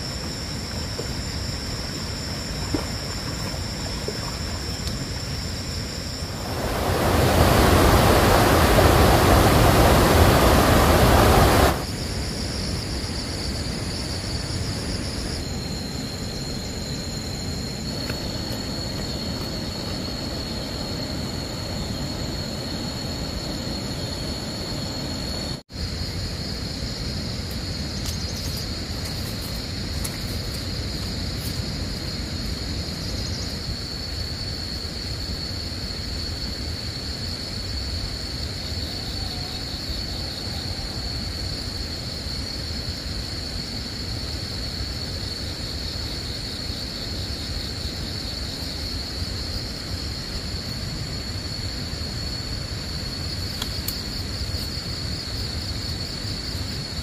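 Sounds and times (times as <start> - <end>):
high-pitched insect drone: 0.0 - 57.0
pulsing insect calls: 0.0 - 57.0
low rumbling noise: 6.2 - 11.9.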